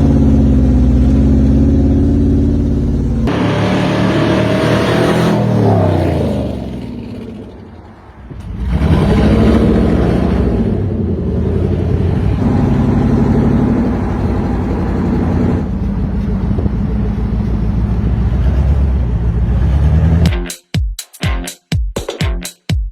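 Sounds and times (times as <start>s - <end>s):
car engine accelerating: 0.0s - 20.3s.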